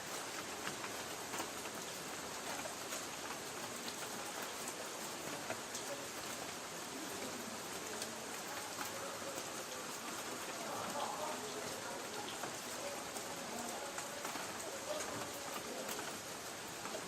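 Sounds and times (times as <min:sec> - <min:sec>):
rain hiss: 0:00.0 - 0:17.0
raindrops ticking on metal roof: 0:00.0 - 0:17.0.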